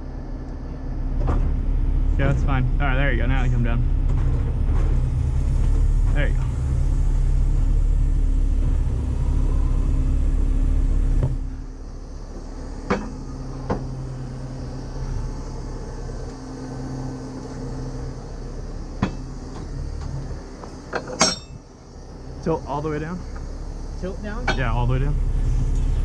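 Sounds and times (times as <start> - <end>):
heavy truck engine revving: 0.9 - 26.0
metal clanks of tow gear: 19.0 - 21.7.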